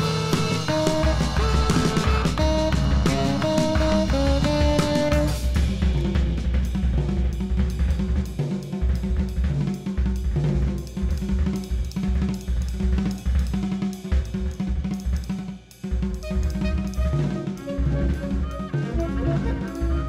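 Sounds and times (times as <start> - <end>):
double bass line: 0.0 - 6.4
jazz drum kit playing: 0.0 - 20.0.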